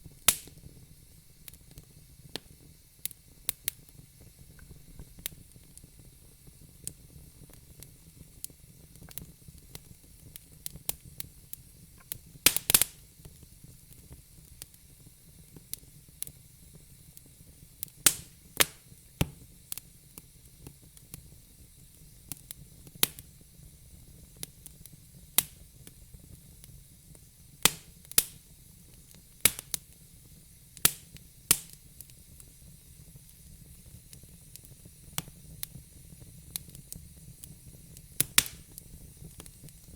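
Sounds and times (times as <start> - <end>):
faint steady hiss: 0.0 - 39.9
wood fire crackling: 0.0 - 39.9
sharp pops and snaps: 0.2 - 0.7, 8.4 - 11.0, 12.0 - 13.4, 17.8 - 19.9, 22.3 - 23.3, 25.4 - 26.0, 27.6 - 28.4, 29.4 - 29.9, 30.8 - 32.2, 36.5 - 39.9.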